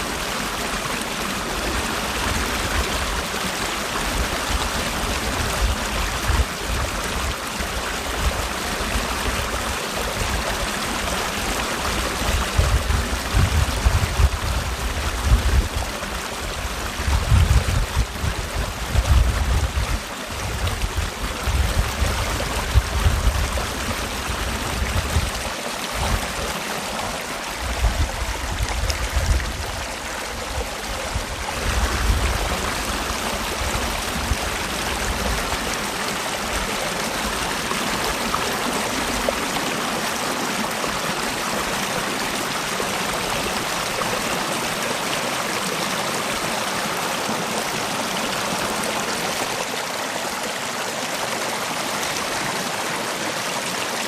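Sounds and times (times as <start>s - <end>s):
stream rushing and gurgling: 0.0s - 54.0s
low rumbling gusts: 27.4s - 35.5s.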